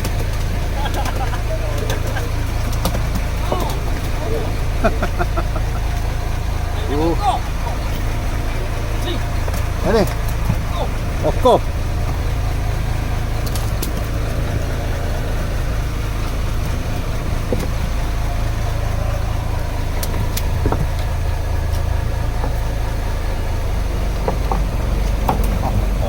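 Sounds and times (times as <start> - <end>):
boat engine idling: 0.0 - 26.0.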